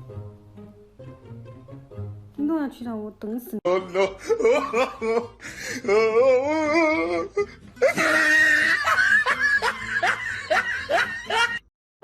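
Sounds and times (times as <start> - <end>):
person laughing hard: 3.7 - 11.7.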